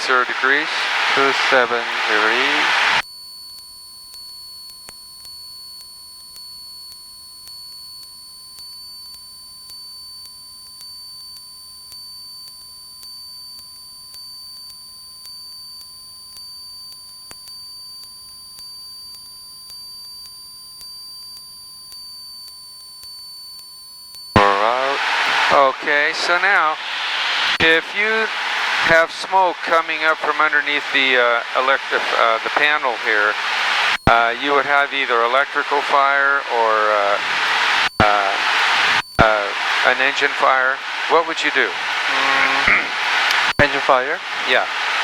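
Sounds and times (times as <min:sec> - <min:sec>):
cockpit audio: 0:24.4 - 0:45.0.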